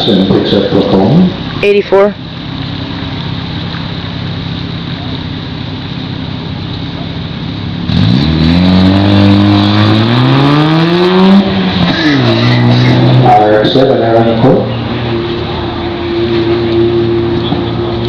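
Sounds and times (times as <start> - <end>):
low engine hum: 0.0 - 18.0
car engine launching and revving: 7.8 - 18.0.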